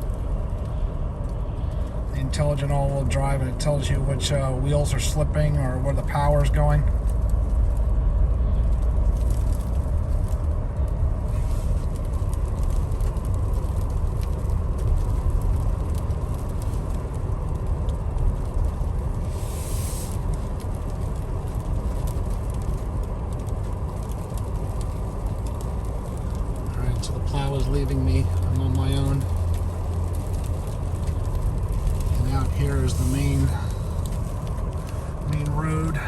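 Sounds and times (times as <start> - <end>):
engine and tyres rumbling: 0.0 - 36.0
brief hiss: 19.3 - 20.2.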